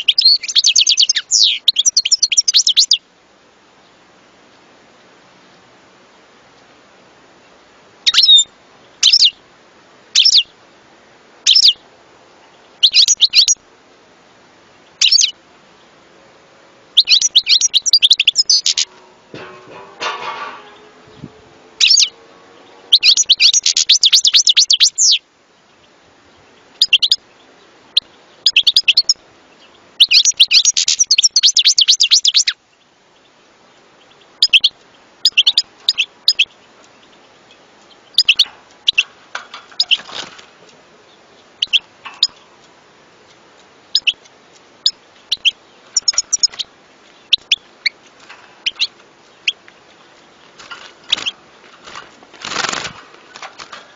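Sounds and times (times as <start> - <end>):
finch twittering song: 0.0 - 3.1, 8.0 - 9.4, 10.2 - 10.6, 11.4 - 11.8, 12.4 - 13.6, 14.9 - 15.9, 16.9 - 40.3, 41.0 - 42.4, 43.3 - 53.9.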